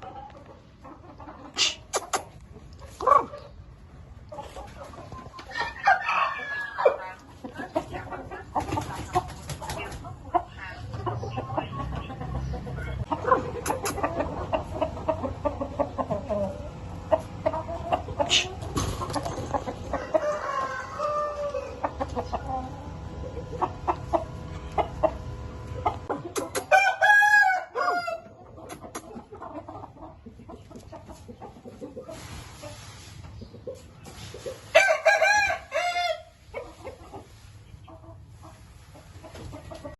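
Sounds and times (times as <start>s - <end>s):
chickens clucking: 0.0s - 39.9s
rooster crowing: 19.9s - 21.9s, 26.7s - 28.3s, 34.8s - 36.3s.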